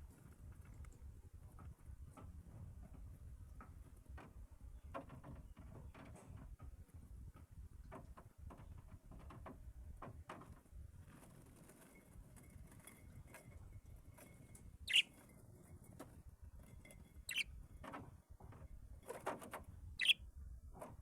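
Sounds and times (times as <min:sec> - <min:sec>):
faint clicks and rustles: 0:00.0 - 0:19.7
small birds chirping: 0:14.9 - 0:15.1, 0:17.3 - 0:17.5, 0:20.0 - 0:20.2.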